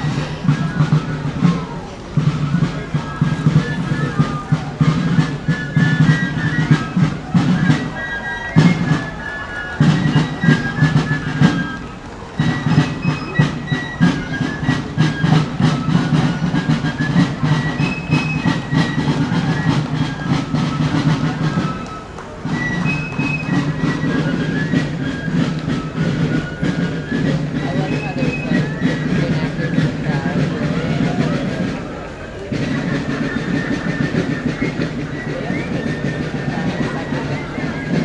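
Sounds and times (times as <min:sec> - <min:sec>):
shrill fifes playing melody: 0:00.0 - 0:38.0
snare drum rolls: 0:00.0 - 0:38.0.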